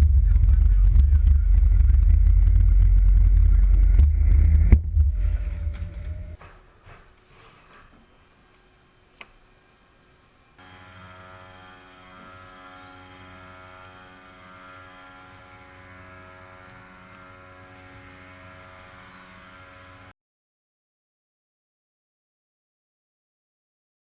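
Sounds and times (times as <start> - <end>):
high machine whine: 0.0 - 6.4, 8.0 - 20.1
machine hum: 0.0 - 6.5, 8.0 - 20.1.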